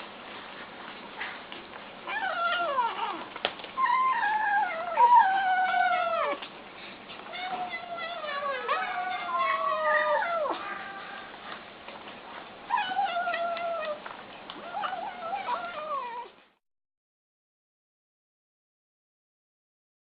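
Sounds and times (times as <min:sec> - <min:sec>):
kittens crying: 0:07.3 - 0:11.4, 0:14.6 - 0:16.3.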